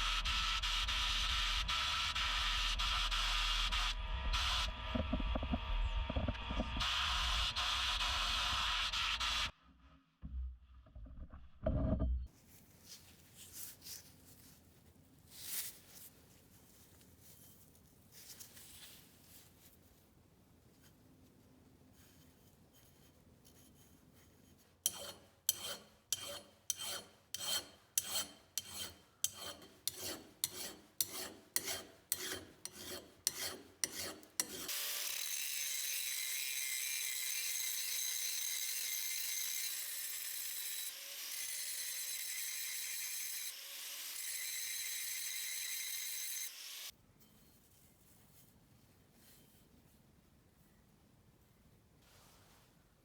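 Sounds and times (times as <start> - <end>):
hand file rasping on steel: 22.8 - 40.0
power grinder on steel: 24.9 - 46.9.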